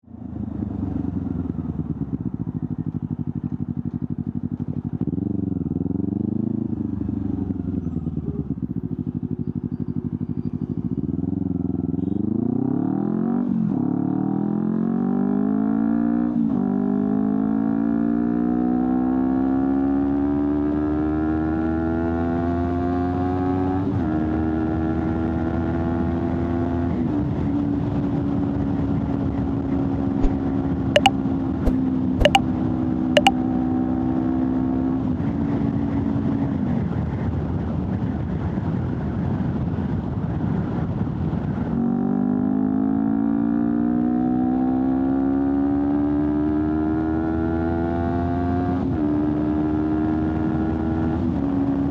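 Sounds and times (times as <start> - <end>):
motorcycle engine revving through gears: 0.5 - 26.9, 30.0 - 32.4, 41.8 - 51.9.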